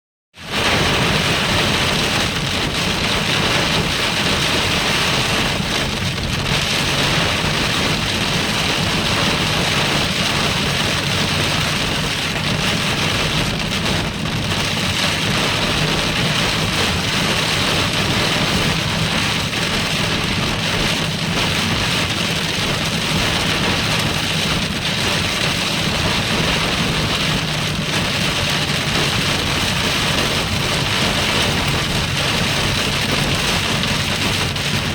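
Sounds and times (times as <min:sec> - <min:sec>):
heavy rain on a car: 0:00.3 - 0:34.9.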